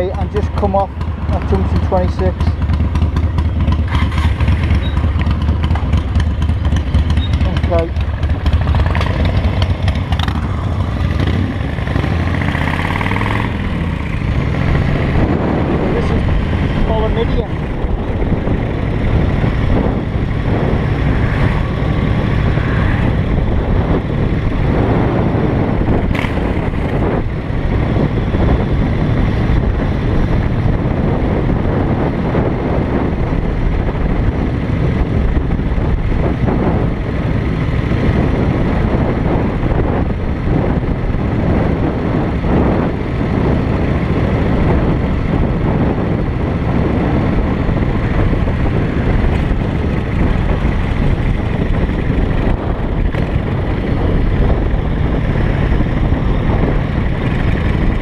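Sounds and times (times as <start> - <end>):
motorcycle engine rumble: 0.0 - 58.0
road and wind noise: 0.0 - 58.0.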